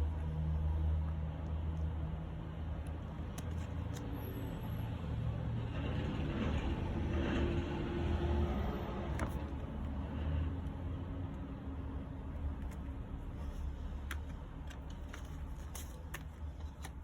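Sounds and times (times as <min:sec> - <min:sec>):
cd case clicking: 0:02.8 - 0:04.2, 0:12.4 - 0:17.0.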